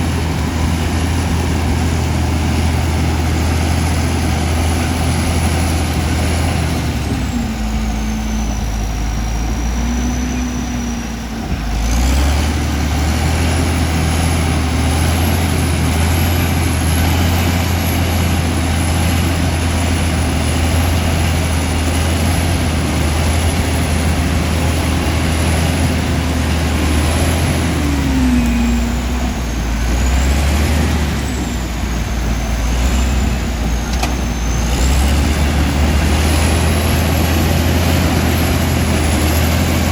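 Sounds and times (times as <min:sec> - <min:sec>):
bulldozer diesel engine running: 0:00.0 - 0:39.9
high wavering whine: 0:14.4 - 0:39.9.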